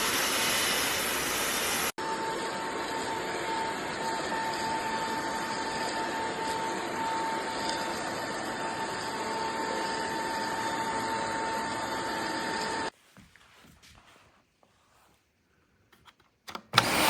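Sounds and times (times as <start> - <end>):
vacuum motor whine: 0.0 - 12.9, 16.7 - 17.0.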